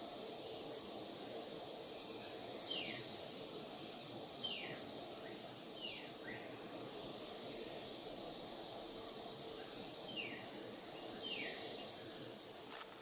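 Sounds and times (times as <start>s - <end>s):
high background hiss: 0.0s - 13.0s.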